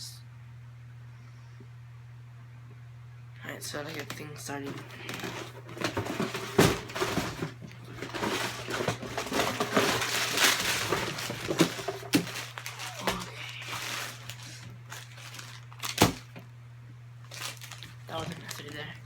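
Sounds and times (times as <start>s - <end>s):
plastic bag crinkling: 3.8s - 16.4s, 17.2s - 19.0s.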